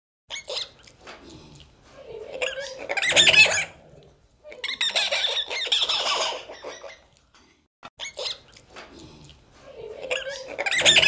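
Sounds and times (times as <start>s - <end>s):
high-pitched animal cries: 2.4s - 3.8s, 8.0s - 8.4s, 10.1s - 11.0s.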